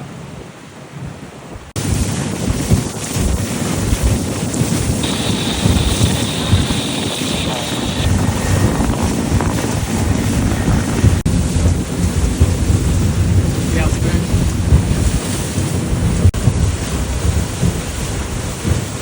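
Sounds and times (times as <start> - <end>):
water and hull noise: 0.0 - 19.0
wind buffeting microphone: 0.2 - 19.0
bright hiss: 5.0 - 8.1.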